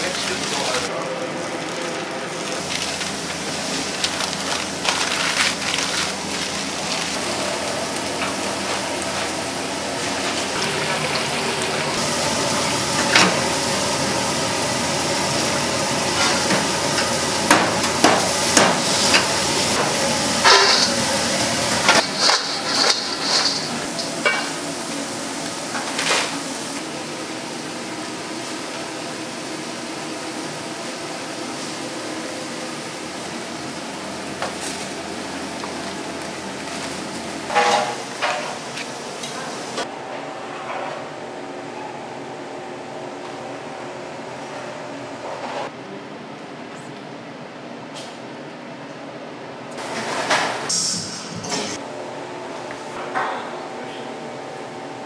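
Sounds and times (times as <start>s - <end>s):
food frying and sizzling: 0.0s - 39.9s
metal utensils clanking and scraping: 18.6s - 21.1s, 21.7s - 24.6s.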